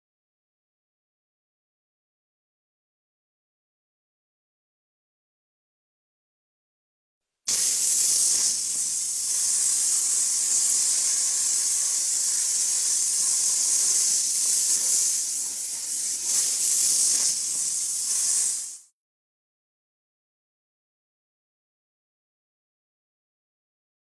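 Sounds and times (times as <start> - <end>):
loud high-pitched hiss: 7.5 - 18.9.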